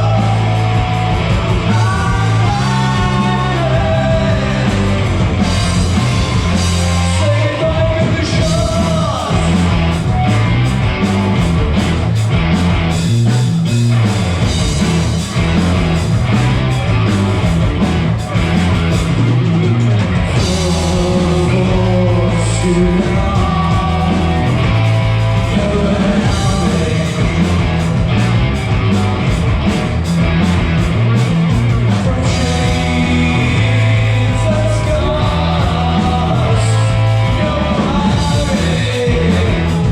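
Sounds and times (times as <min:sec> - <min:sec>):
person singing: 0:00.0 - 0:05.2, 0:20.4 - 0:24.8, 0:25.4 - 0:27.8, 0:31.9 - 0:39.9
live rock band playing: 0:00.0 - 0:39.9.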